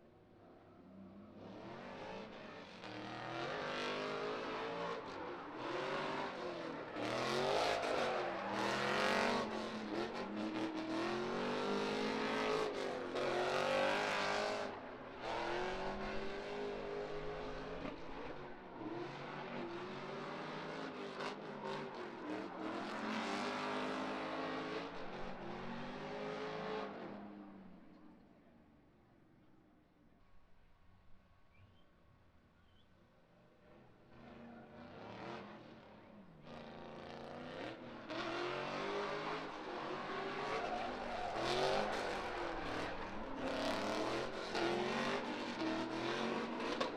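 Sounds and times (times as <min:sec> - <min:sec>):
car engine revving: 0:37.0 - 0:46.9.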